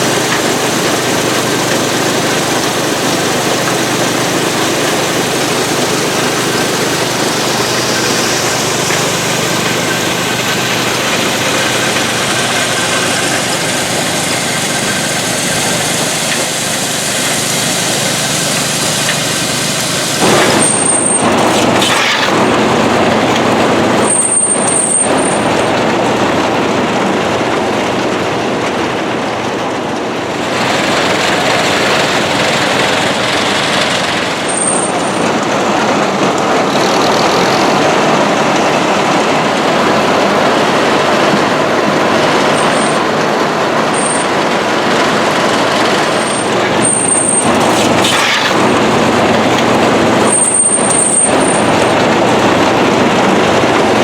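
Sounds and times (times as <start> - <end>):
farm machinery running: 0.0 - 54.0.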